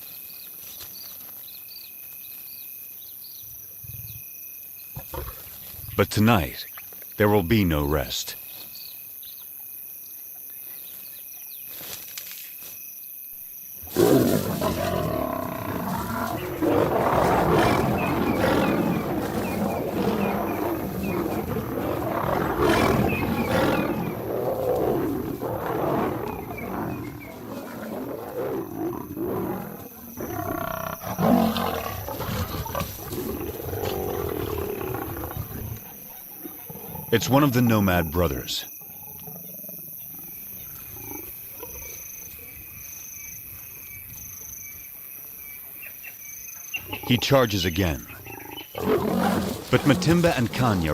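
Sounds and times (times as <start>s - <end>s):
night insects chirring: 0.0s - 50.9s
lions growling and roaring: 13.8s - 42.7s, 46.8s - 50.9s.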